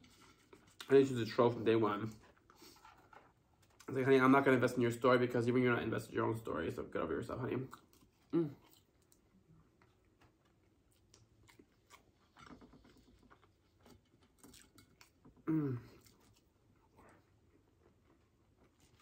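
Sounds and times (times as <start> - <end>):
chewing french fries: 7.5 - 19.0
person humming mm: 8.3 - 8.6, 15.4 - 16.0.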